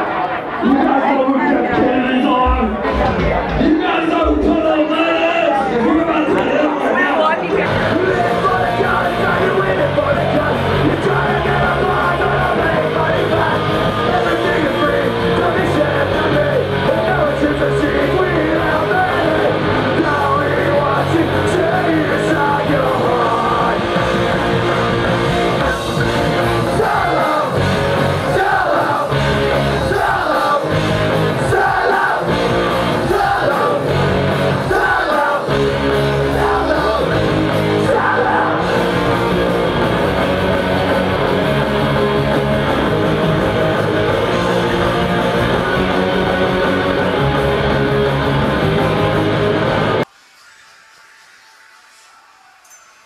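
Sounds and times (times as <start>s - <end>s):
distorted electric guitars: 0.0s - 53.0s
drums: 1.6s - 6.4s, 7.5s - 50.7s
punk rock band playing: 7.6s - 50.0s.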